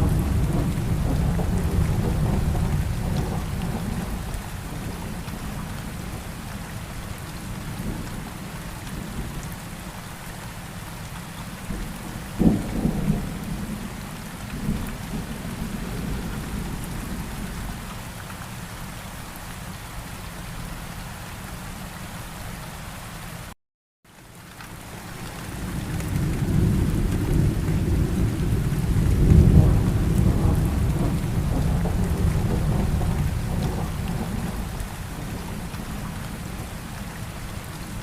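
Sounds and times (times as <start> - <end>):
rumbling thunder: 0.0 - 6.2, 11.7 - 17.9, 25.6 - 37.0
steady rain: 0.0 - 38.0
sharp thunderclap: 26.1 - 34.7.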